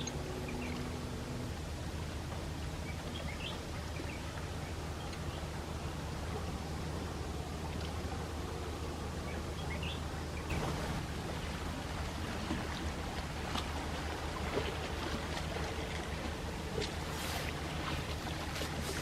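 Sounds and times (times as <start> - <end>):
small waves lapping on shore: 0.0 - 19.0
steady low hum: 0.0 - 19.0.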